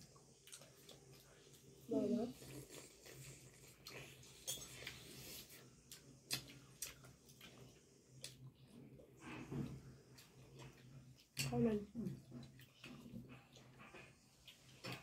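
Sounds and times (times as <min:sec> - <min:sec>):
eating clicks and smacks: 0:00.1 - 0:01.7, 0:05.8 - 0:08.6.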